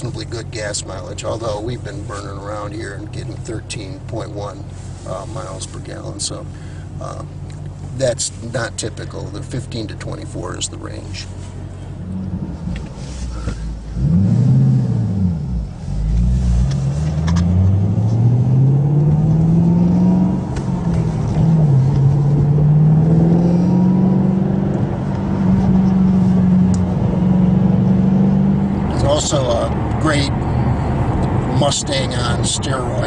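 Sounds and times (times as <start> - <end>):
car engine revving and accelerating: 12.0 - 33.0.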